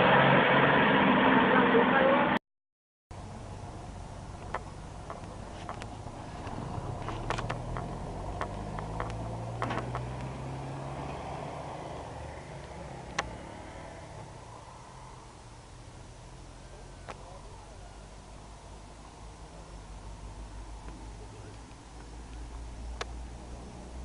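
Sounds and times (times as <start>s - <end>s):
vehicle engine running: 3.1s - 24.0s
sharp clicks: 7.2s - 10.3s.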